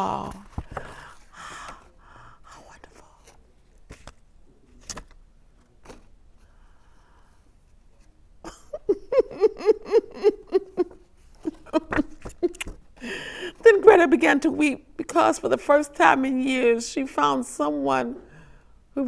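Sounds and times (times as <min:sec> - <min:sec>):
woman sobbing: 0:08.4 - 0:13.9.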